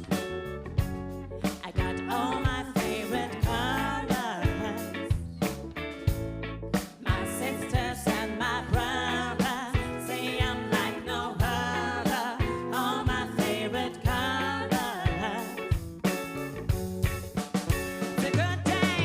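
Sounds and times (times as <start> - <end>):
bass line: 0.0 - 19.0
person singing with vibrato: 1.4 - 5.2, 7.0 - 15.7, 18.2 - 19.0.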